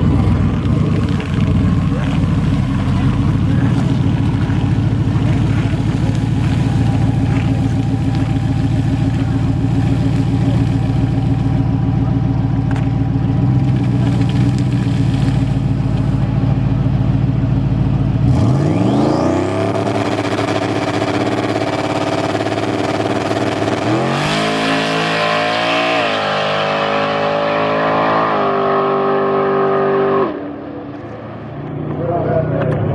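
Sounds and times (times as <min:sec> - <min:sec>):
car engine revving through gears: 0:18.2 - 0:32.0.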